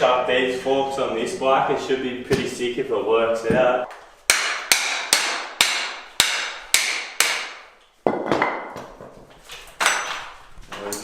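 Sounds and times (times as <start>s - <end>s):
hammer strikes on metal: 4.3s - 7.7s.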